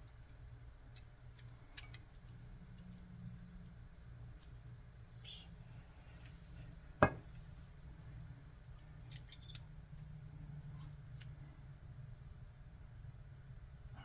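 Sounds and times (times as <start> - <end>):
low steady hum: 0.0 - 14.0
small tools clicking: 1.4 - 2.0, 9.1 - 9.7.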